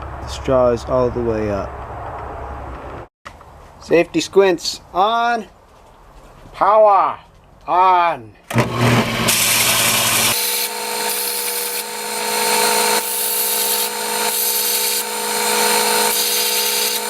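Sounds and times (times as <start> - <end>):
grinder motor hum: 8.5 - 17.0
steel hissing on abrasive: 12.5 - 17.0.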